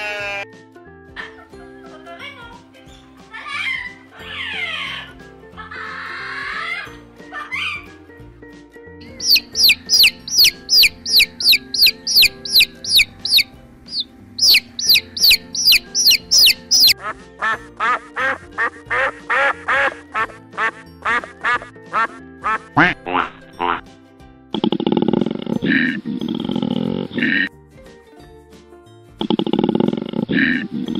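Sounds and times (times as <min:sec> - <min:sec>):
background music: 0:00.0 - 0:30.9
quail chicks peeping: 0:09.0 - 0:17.0
geese honking: 0:09.1 - 0:23.8.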